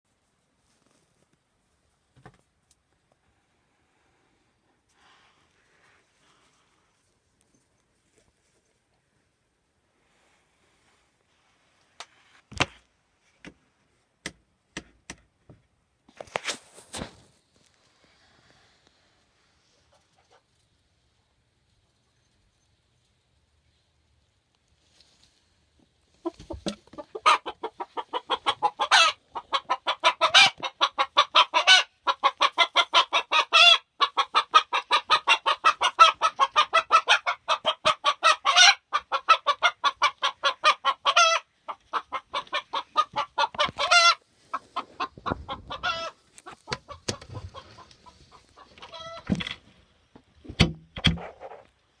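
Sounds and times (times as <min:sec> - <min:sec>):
chicken clucking and squawking: 0:26.2 - 0:49.3.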